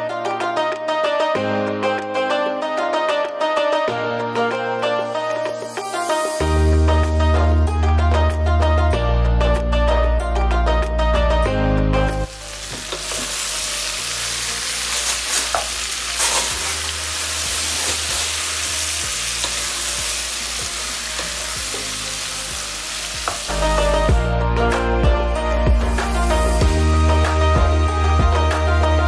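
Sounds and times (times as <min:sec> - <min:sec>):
background music: 0:00.0 - 0:29.0
food sizzling in oil: 0:12.1 - 0:24.1.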